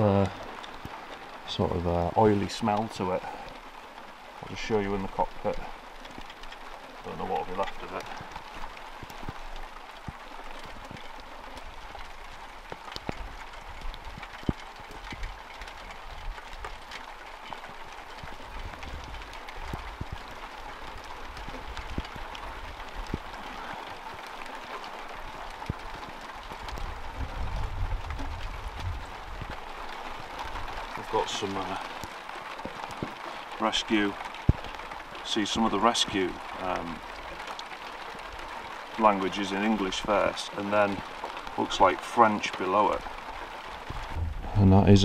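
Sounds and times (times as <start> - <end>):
sharp clicks of raindrops: 0.0 - 45.0
steady light rain: 0.0 - 45.0
low rumble: 43.9 - 45.0.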